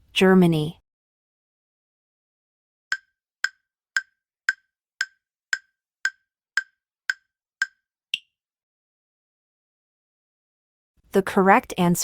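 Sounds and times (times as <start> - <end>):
countdown timer clock ticks: 2.9 - 8.3.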